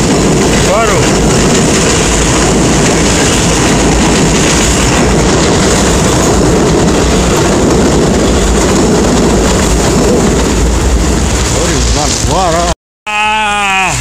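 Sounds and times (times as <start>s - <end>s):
low rumble: 0.0s - 12.7s
heavy rain rushing: 0.0s - 12.8s.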